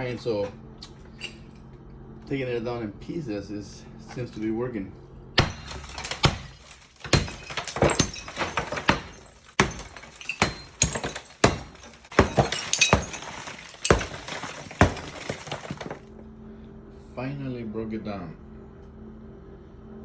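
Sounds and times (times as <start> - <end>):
breaking material cracking and clattering: 5.4 - 16.1.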